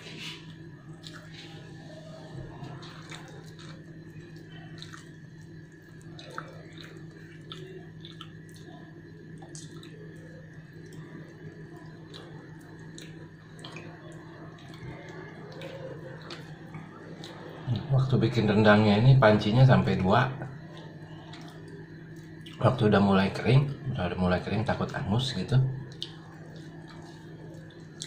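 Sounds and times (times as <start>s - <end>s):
steady low hum: 0.0s - 28.0s
wet chewing and mouth clicks: 0.2s - 1.7s, 2.6s - 17.9s, 20.5s - 22.6s, 25.8s - 28.0s.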